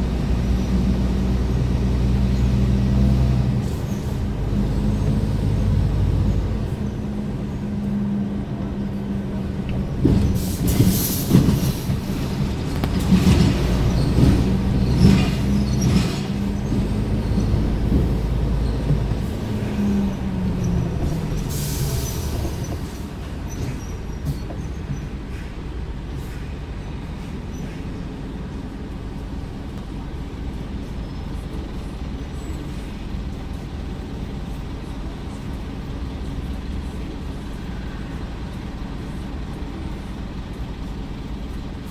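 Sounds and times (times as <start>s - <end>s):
diesel truck engine running: 0.0s - 41.9s.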